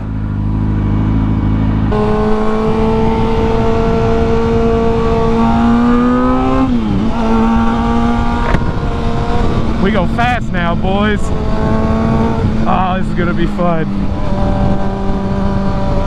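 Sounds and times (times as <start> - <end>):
motorcycle engine accelerating: 0.0 - 16.0
wind rushing over microphone: 0.0 - 16.0.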